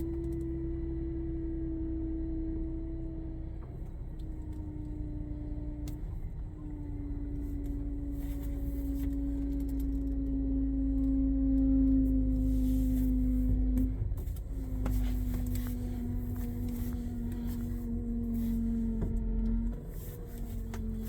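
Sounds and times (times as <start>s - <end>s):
power steering whine: 0.0s - 21.0s
engine idling: 11.0s - 21.0s.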